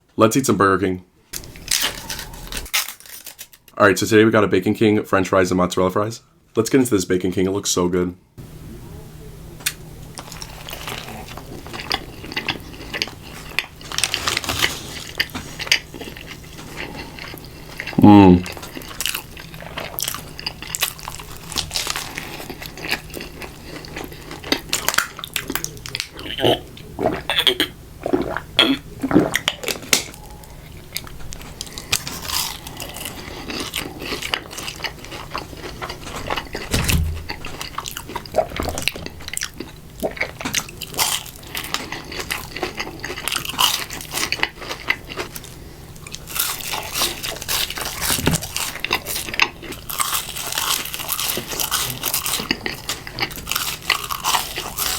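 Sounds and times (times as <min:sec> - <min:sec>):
crunching and chewing: 0:01.4 - 0:03.8, 0:09.6 - 0:27.3, 0:28.0 - 0:54.9
close-miked burger eating: 0:09.6 - 0:54.9.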